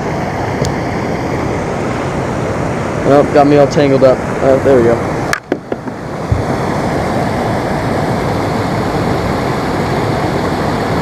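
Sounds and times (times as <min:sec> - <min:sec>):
waterfall rushing: 0:00.0 - 0:11.0
low thump: 0:05.5 - 0:06.5.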